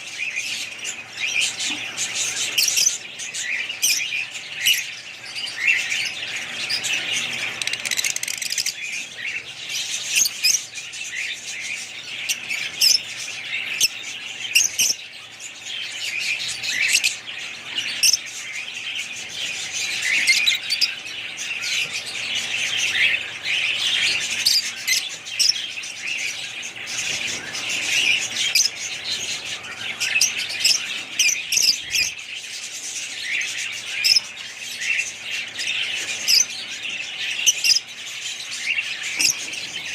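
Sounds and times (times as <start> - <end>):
flock of small birds chirping: 0.0 - 39.9.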